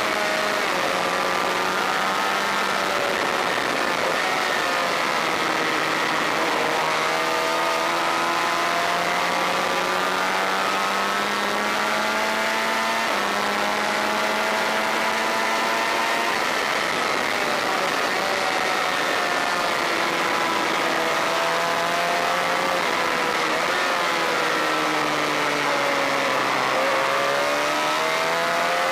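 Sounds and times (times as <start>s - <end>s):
motorcycle engine revving at speed: 0.0s - 28.9s.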